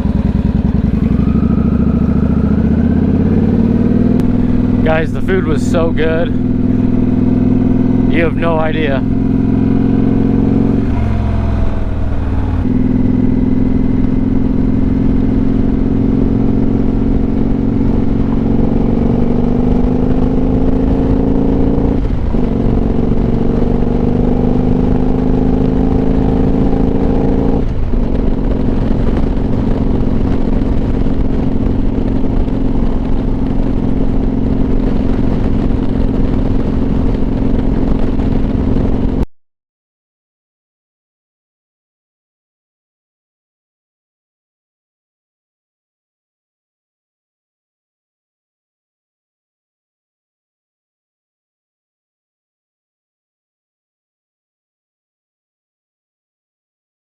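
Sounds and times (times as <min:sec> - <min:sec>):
wind rumble on microphone: 0:00.0 - 0:39.2
motorcycle engine accelerating: 0:00.0 - 0:39.3.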